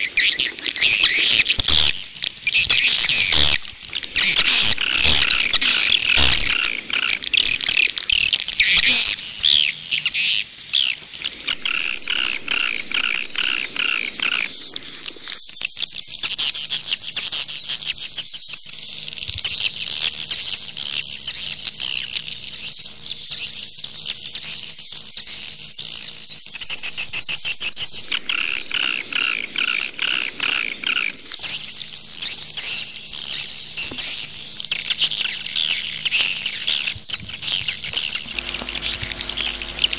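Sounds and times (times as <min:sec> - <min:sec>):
swiftlets twittering: 0:00.8 - 0:09.9, 0:34.2 - 0:39.9.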